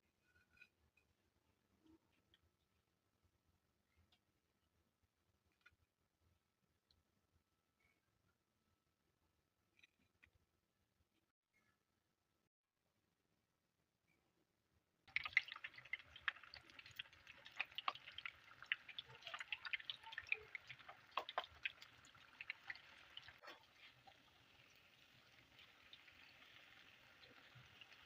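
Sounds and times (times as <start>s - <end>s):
food sizzling in hot oil: 15.1s - 28.0s.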